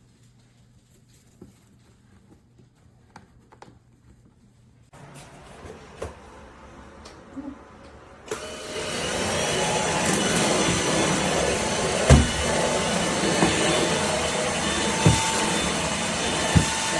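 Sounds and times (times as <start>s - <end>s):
stick vacuum cleaner humming: 5.0s - 16.9s.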